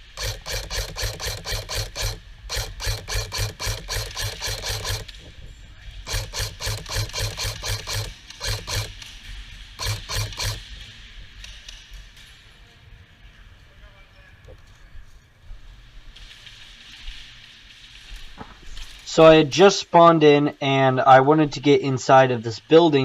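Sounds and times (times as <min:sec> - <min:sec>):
airsoft gun rapid shots: 0:00.0 - 0:05.2, 0:06.0 - 0:09.2, 0:09.8 - 0:10.7.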